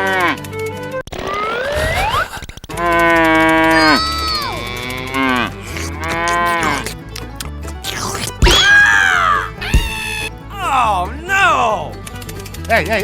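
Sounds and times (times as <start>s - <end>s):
cow mooing: 3.7s - 6.8s.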